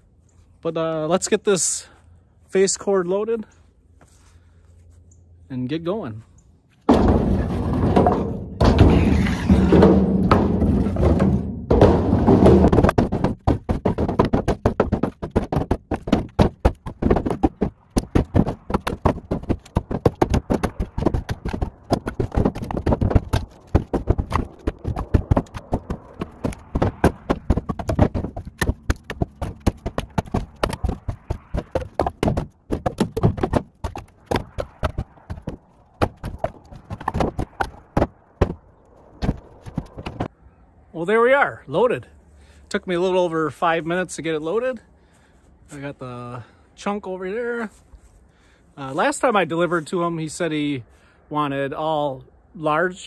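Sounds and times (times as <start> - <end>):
firewood knocking and clattering: 6.8 - 40.3.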